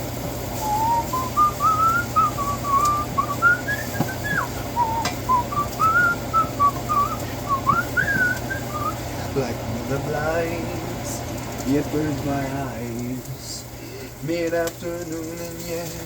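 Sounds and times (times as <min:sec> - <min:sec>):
person whistling a tune: 0:00.6 - 0:09.0.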